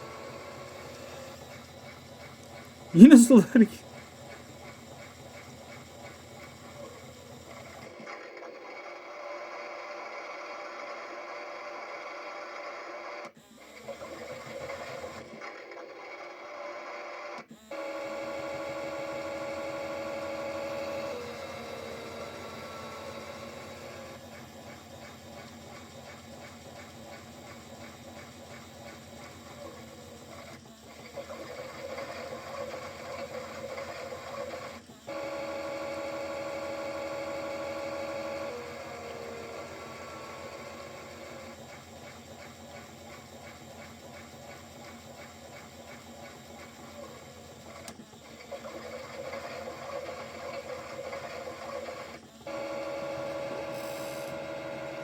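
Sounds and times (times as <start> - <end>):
toy washing machine motor whine: 13.7 - 55.0
toy washing machine motor whining: 31.1 - 43.8, 48.5 - 55.0.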